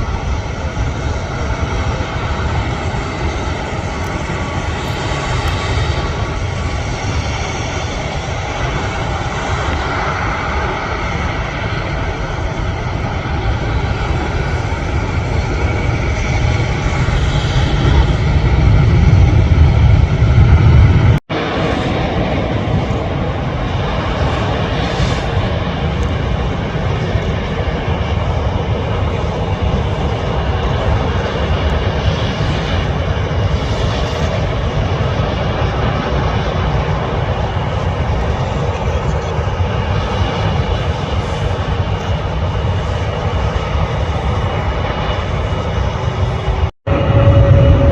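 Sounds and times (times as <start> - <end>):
jet engines roaring: 0.0 - 47.9.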